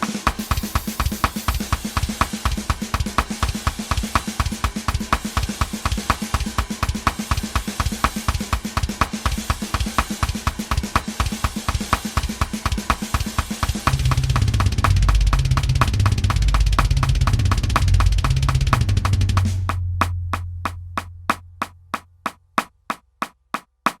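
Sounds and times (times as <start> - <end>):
metal drum kit playing: 0.0 - 22.7
heavy sustained low notes: 13.8 - 22.6.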